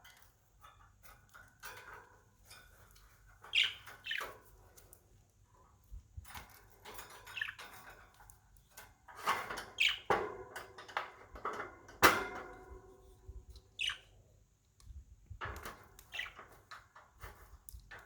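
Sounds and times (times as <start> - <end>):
small clicks and rattles: 0.0 - 12.6, 14.8 - 18.0
budgerigars chirping: 3.5 - 4.4, 7.2 - 7.7, 9.8 - 10.1, 13.8 - 14.1, 16.1 - 16.4.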